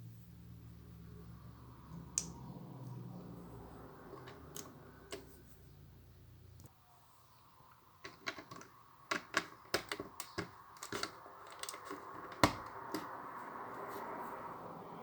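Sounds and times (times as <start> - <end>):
plastic bricks clicking: 8.0 - 13.1.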